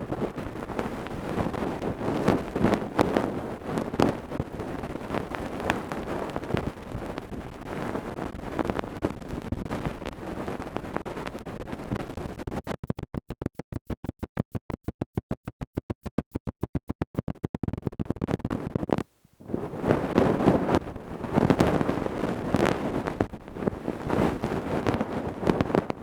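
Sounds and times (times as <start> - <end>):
tools scratching and rubbing: 12.2 - 15.8.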